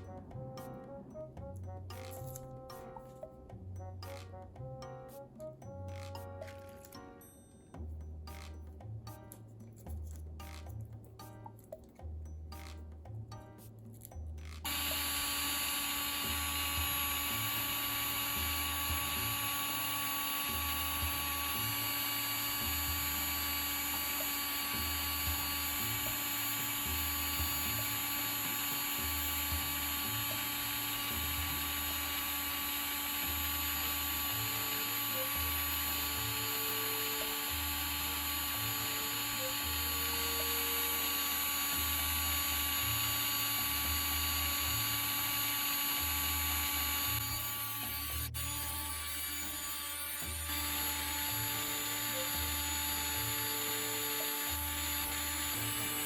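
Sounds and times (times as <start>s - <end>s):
small electric motor whining: 14.5s - 56.0s.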